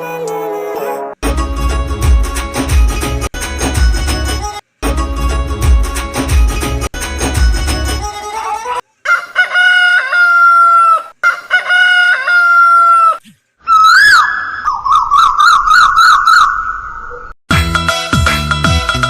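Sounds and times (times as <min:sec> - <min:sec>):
music: 0:00.0 - 0:08.1, 0:17.5 - 0:19.0
bird calls: 0:13.0 - 0:17.3.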